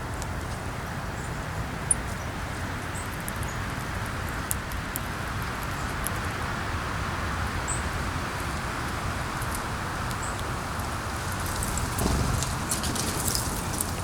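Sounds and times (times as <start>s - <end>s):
wind rumbling on microphone: 6.8s - 14.0s
rustling leaves: 7.8s - 14.0s.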